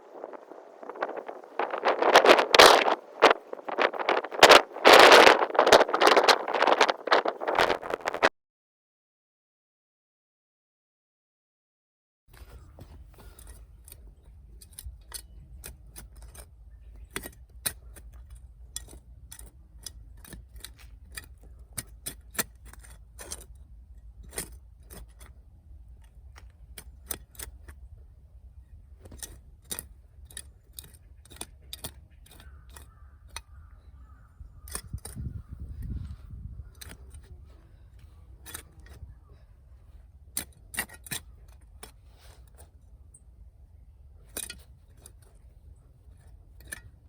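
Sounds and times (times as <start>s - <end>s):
campfire crackling and popping: 0.0s - 8.3s.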